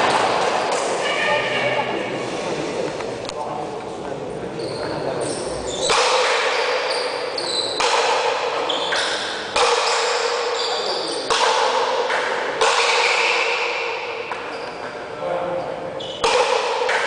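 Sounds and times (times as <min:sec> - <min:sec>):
ball cracking off paddles and wall: 0:05.8 - 0:07.0, 0:07.6 - 0:15.0, 0:16.2 - 0:17.0.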